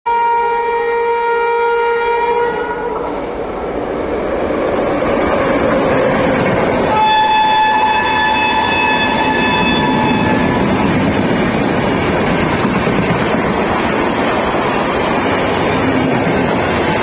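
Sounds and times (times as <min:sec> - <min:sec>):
train horn: 0:00.1 - 0:03.4, 0:06.8 - 0:10.8
train rumbling and rattling: 0:01.9 - 0:17.0.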